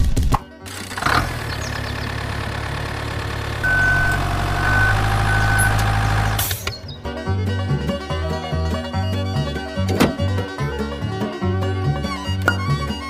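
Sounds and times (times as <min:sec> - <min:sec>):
truck engine idling: 0:00.8 - 0:07.9
short high beeps: 0:03.6 - 0:06.0.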